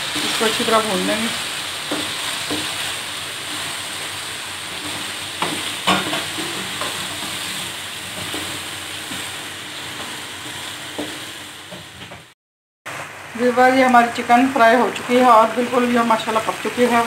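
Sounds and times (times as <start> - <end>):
chicken sizzling in oil: 0.0 - 17.0
spatula scraping a wok: 1.4 - 11.3.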